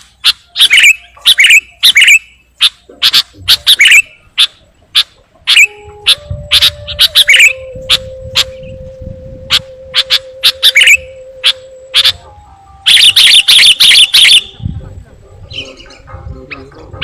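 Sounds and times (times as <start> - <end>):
bird chirping: 0.0 - 17.0
steady low tone: 2.9 - 13.2.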